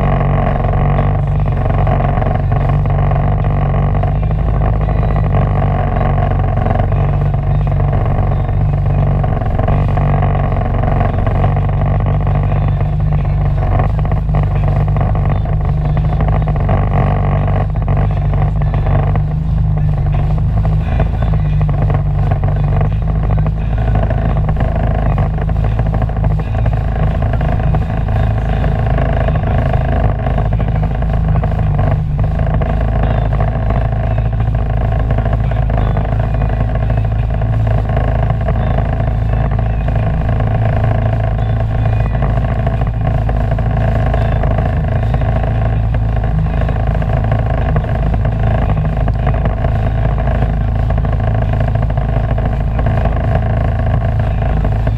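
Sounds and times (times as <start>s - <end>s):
watercraft engine running: 0.0s - 54.9s.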